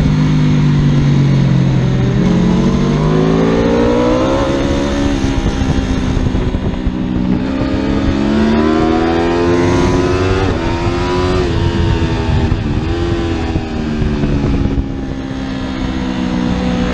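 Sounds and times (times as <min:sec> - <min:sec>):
motorbike engine accelerating: 0:00.0 - 0:16.9.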